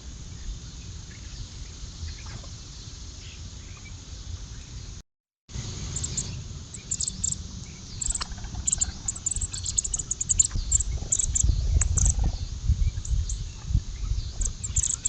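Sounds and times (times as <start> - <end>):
small birds chirping: 5.6 - 15.0.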